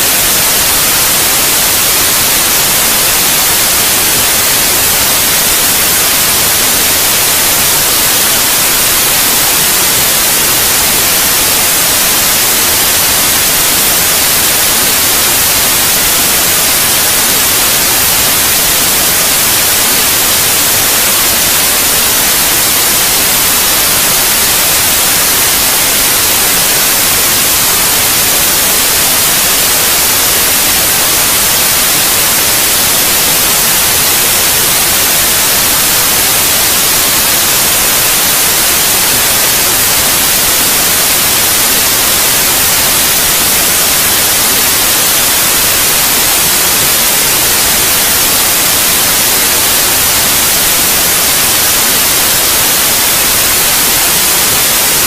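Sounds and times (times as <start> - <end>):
steady white noise hiss: 0.0 - 55.0.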